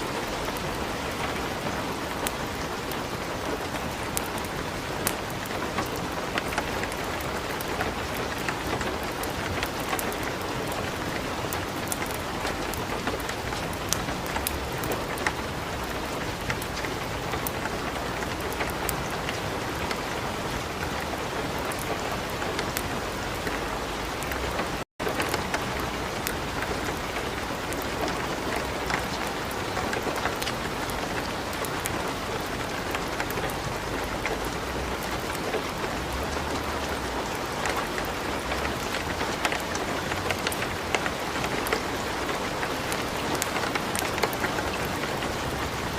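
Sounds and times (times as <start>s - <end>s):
light rain: 0.0s - 45.9s
wood fire crackling: 2.0s - 45.9s.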